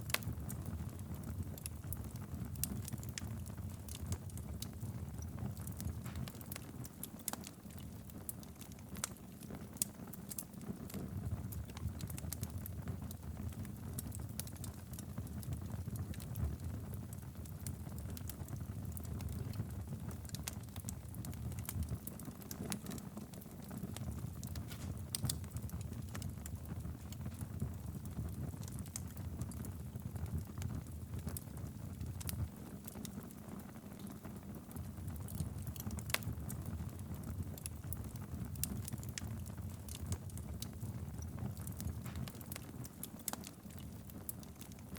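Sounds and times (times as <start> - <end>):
fire crackling and popping: 0.0 - 44.9
wood fire low rumble: 0.0 - 44.9.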